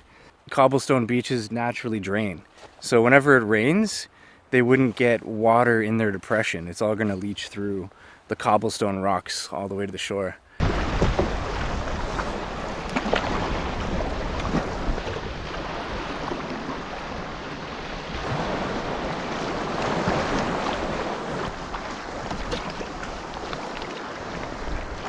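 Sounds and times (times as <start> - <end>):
water splashing around canoe: 10.5 - 25.0
wind buffeting microphone: 10.6 - 25.0.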